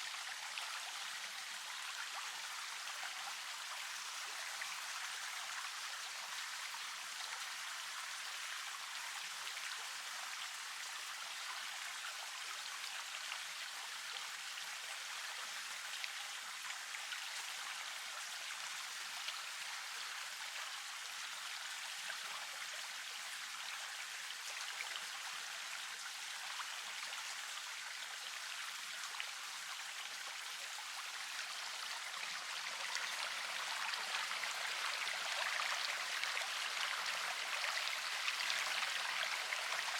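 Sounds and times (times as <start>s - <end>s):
river water flowing: 27.8s - 39.9s.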